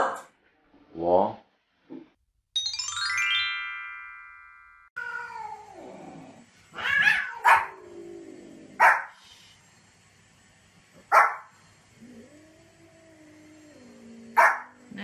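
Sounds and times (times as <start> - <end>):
rising run of chime notes: 2.6 - 4.9
cat yowling: 5.0 - 5.8, 6.7 - 7.8
small dog barking: 6.9 - 7.8, 8.8 - 9.2, 11.1 - 11.5, 14.4 - 14.8.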